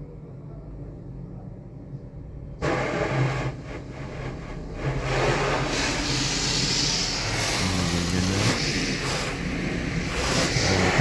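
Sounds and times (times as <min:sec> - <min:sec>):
low motor hum: 0:02.6 - 0:11.0
water spray hissing: 0:05.0 - 0:11.0.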